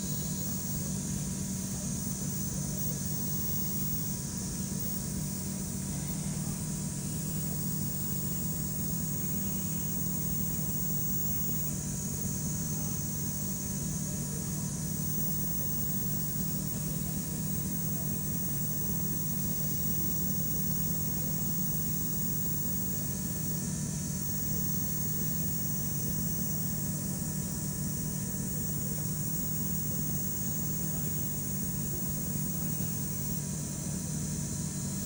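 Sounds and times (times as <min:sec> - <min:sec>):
low machine hum: 0:00.0 - 0:35.0.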